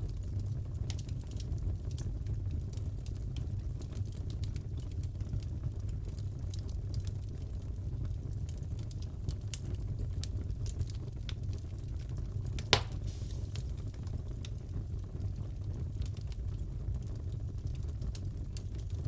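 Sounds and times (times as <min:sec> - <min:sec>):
fire crackling: 0:00.0 - 0:19.0
burning wood rumble: 0:00.2 - 0:19.0
loud pop from fire: 0:12.6 - 0:14.2.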